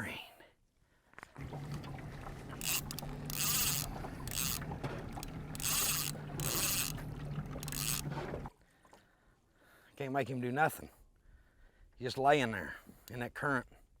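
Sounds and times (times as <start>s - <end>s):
water splashing against hull: 1.2s - 9.1s
boat motor humming: 1.4s - 8.5s.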